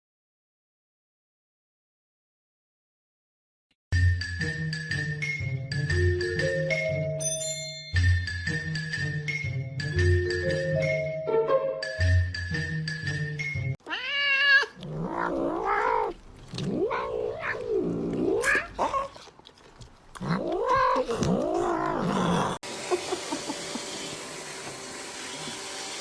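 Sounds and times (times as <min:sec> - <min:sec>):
cat yowling: 0:13.8 - 0:19.3, 0:20.2 - 0:22.6.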